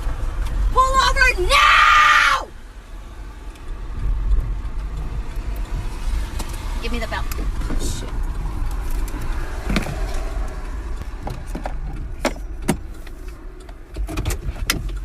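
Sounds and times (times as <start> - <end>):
car rumble: 0.0 - 15.0
sharp clicks and knocks of handling: 7.3 - 15.0.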